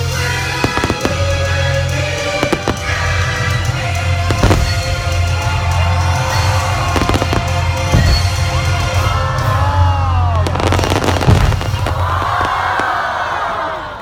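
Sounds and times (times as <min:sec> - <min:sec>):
music: 0:00.0 - 0:14.0
fireworks bangs: 0:00.2 - 0:09.5, 0:10.4 - 0:13.5.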